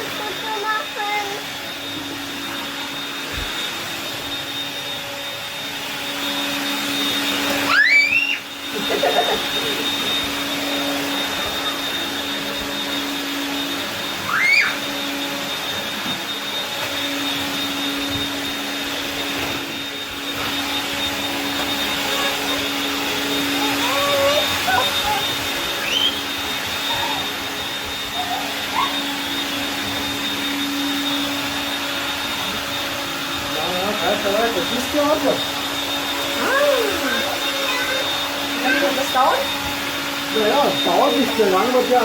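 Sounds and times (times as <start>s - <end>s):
stick vacuum whirring: 0.0s - 42.0s
short rising squeals: 6.1s - 8.9s, 14.0s - 15.6s, 19.8s - 32.8s.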